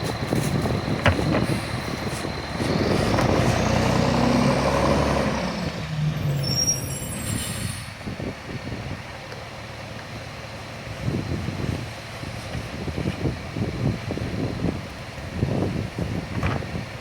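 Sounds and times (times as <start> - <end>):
garbage truck diesel engine: 0.0 - 17.0
brief high squeal: 6.2 - 8.0.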